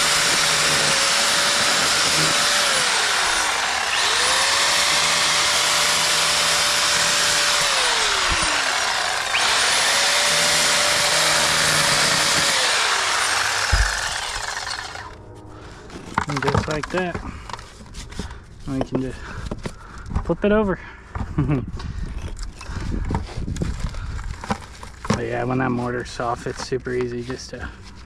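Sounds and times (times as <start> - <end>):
power grinder cutting mortar: 0.0 - 15.2.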